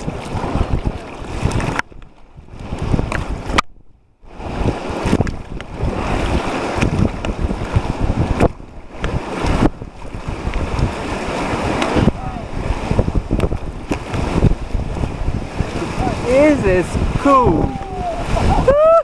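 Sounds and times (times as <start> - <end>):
wind buffeting microphone: 0.0 - 19.0
whitewater rushing and splashing: 4.4 - 19.0.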